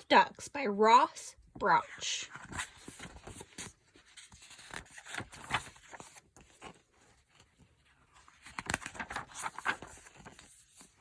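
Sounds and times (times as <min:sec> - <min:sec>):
paper pages rustling: 0:02.2 - 0:11.0.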